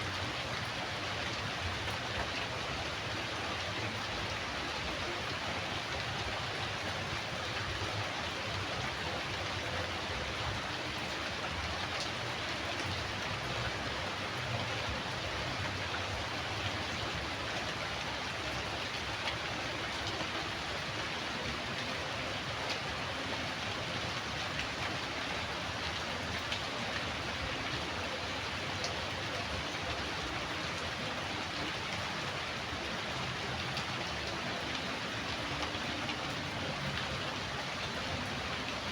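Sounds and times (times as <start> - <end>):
steady rain hiss: 0.0 - 38.9
faint raindrop ticks: 33.5 - 38.8.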